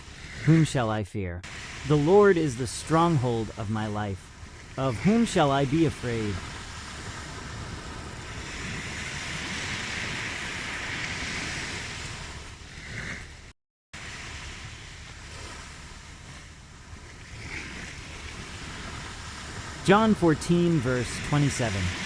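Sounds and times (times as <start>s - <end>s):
ocean waves washing onto shore: 0.0s - 22.0s.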